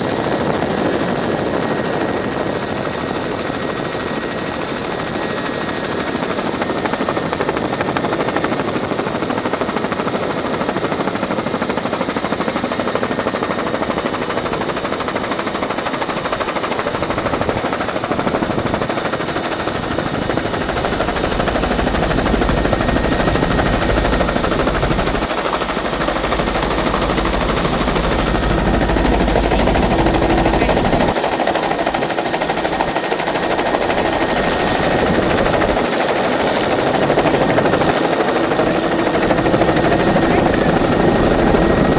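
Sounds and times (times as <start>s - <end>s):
helicopter turbine and rotor chop: 0.0s - 41.9s.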